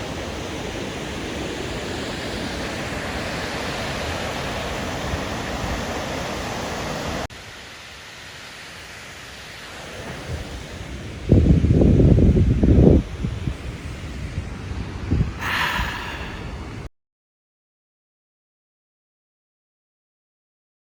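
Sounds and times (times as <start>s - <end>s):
waterfall rushing: 0.0s - 14.3s, 15.1s - 16.9s.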